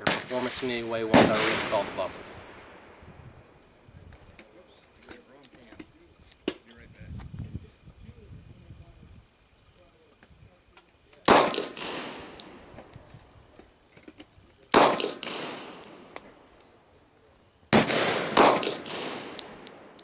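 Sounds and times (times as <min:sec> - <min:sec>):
pistol shots echoing: 0:00.0 - 0:03.1, 0:11.3 - 0:13.1, 0:14.7 - 0:16.7, 0:17.7 - 0:20.0
brass casings tinkling: 0:11.5 - 0:13.4, 0:14.9 - 0:16.9, 0:18.5 - 0:20.0.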